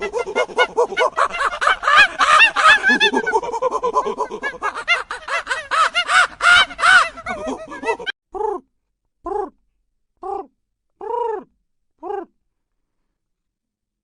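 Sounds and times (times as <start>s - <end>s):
flock of fowl calling: 0.0s - 3.2s, 4.6s - 7.6s.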